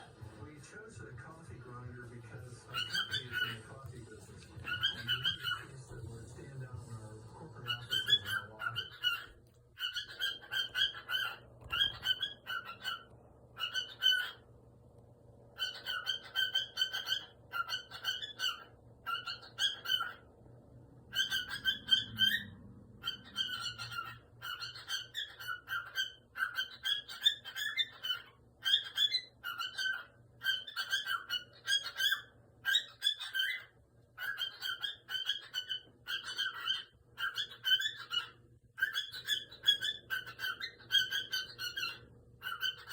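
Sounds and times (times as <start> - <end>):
cockatiel chirping whistles: 7.6 - 14.4, 15.6 - 20.2, 21.1 - 42.9.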